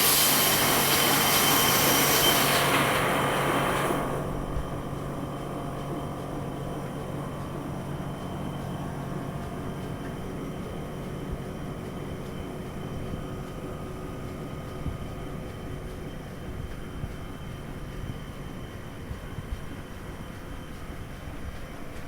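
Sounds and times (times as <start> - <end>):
printing press running: 0.0 - 17.8.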